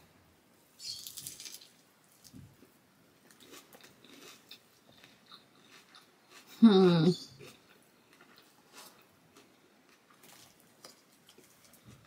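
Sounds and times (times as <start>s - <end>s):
crisp crunch of biting sandwich: 1.0s - 2.4s
faint chewing: 1.0s - 12.0s.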